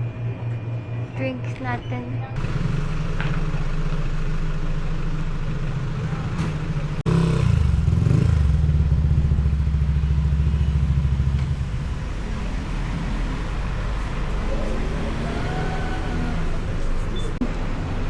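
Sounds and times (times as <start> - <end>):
vehicle engine running: 2.4 - 15.1.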